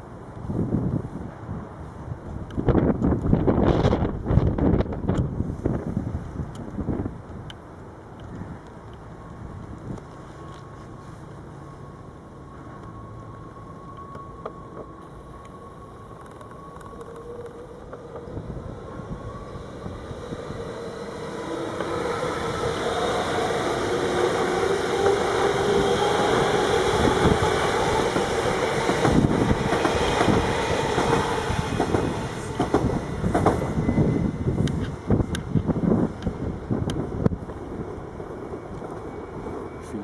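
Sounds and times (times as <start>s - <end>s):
train passing through station: 0.0s - 40.0s
train wheels clicking over rail joints: 24.0s - 37.7s.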